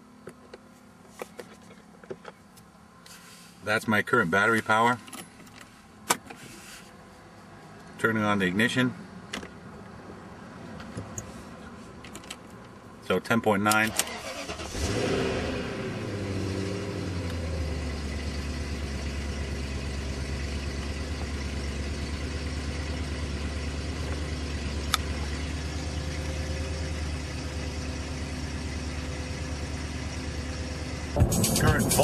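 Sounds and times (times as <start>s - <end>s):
car engine idling: 14.2s - 32.0s.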